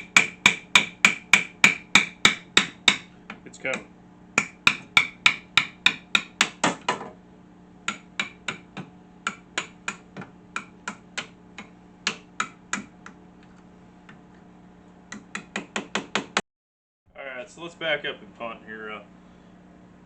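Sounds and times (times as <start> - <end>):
hammer striking metal punch: 0.0 - 7.1, 7.9 - 12.9
steady low hum: 0.0 - 16.4, 17.1 - 20.0.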